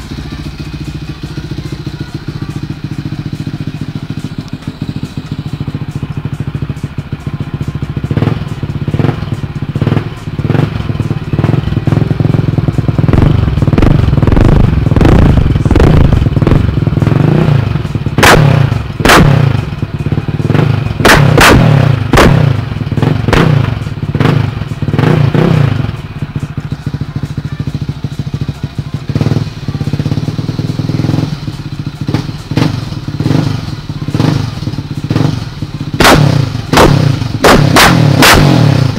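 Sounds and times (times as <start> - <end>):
quad engine revving: 8.0 - 38.9
exhaust cracks: 11.8 - 26.2, 29.2 - 38.9.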